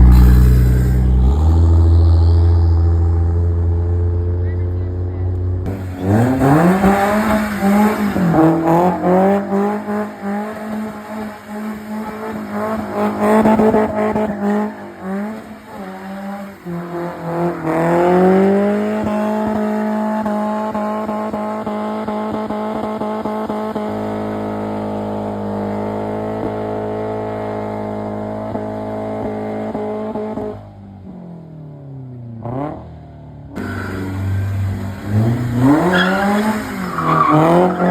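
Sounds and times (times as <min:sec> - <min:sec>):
car engine revving: 0:00.0 - 0:31.4, 0:33.5 - 0:37.9
tyre squeal: 0:35.6 - 0:37.9.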